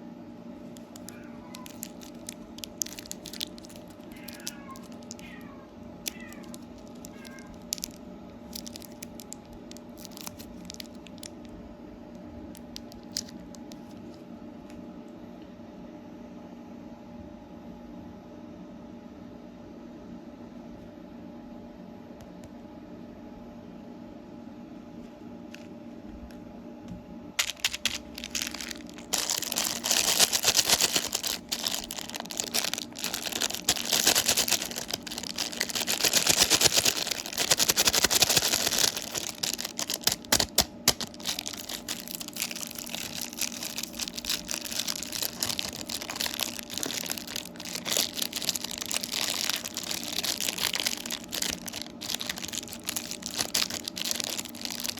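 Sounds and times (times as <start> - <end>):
low room hum: 0.0 - 54.9
candy wrapper crinkling: 0.7 - 11.6, 12.5 - 14.2, 27.4 - 54.9.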